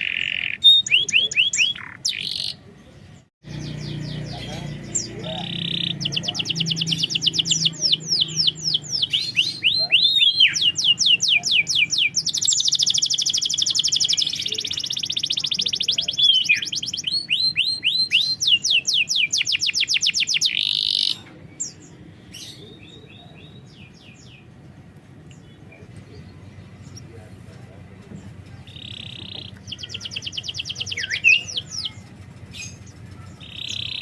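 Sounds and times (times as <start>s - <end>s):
canary singing fast high trills: 0.0s - 2.6s, 3.4s - 24.5s, 28.6s - 34.0s
faint bird chirps: 0.0s - 24.5s, 28.3s - 34.0s.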